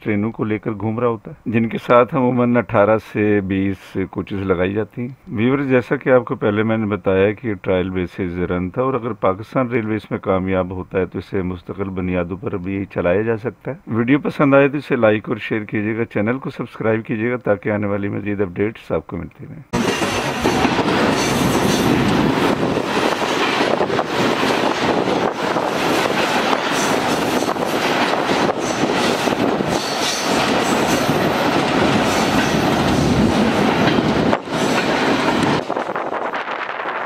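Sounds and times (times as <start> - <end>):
freight train wheels rumbling on rails: 19.7 - 37.0.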